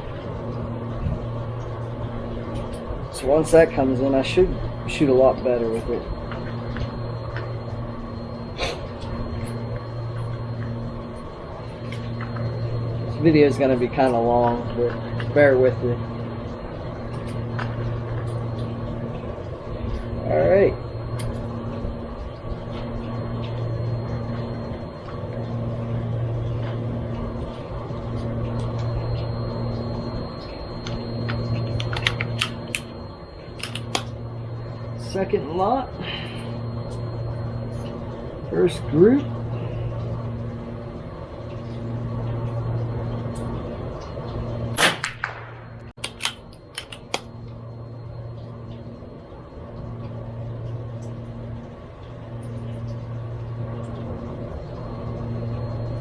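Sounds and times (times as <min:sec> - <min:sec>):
low hum: 0:00.0 - 0:56.0
motor running low rumble: 0:00.0 - 0:56.0
rifle shot with ringing tail: 0:44.8 - 0:45.7.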